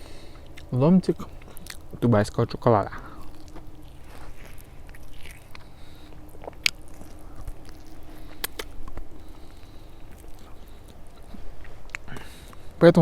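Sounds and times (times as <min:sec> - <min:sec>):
person chewing food: 0:00.0 - 0:12.8.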